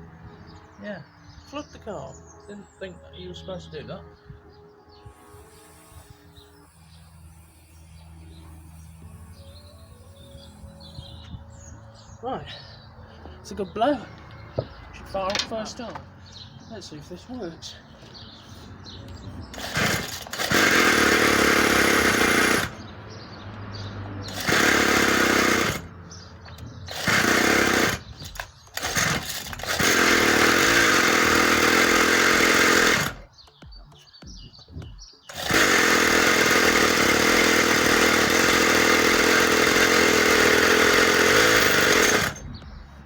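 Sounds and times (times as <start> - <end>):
two-stroke engine revving unevenly: 19.5 - 33.3, 35.3 - 42.8.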